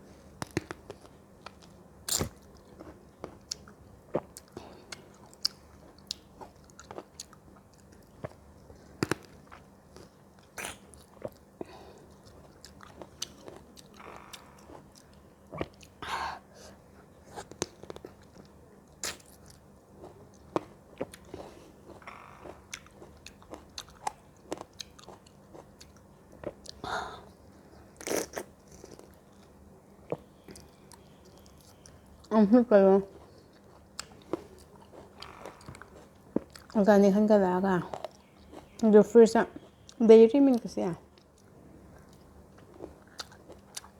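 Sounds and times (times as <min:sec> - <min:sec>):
wet chewing: 0:00.4 - 0:16.0, 0:17.3 - 0:26.8, 0:33.0 - 0:36.8, 0:39.6 - 0:43.9.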